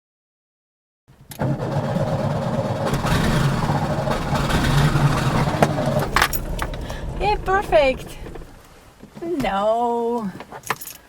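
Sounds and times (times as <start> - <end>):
car engine turning: 1.1 - 9.6.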